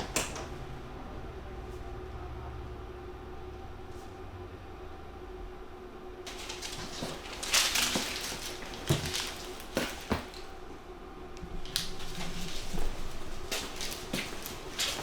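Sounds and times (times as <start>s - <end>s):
hard objects clattering and rattling: 6.3s - 10.6s, 11.6s - 15.0s.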